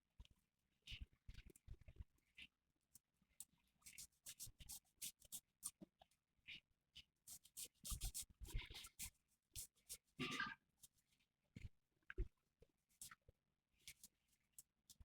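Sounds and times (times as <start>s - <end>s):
faint scratching and clicking: 0.2s - 15.0s.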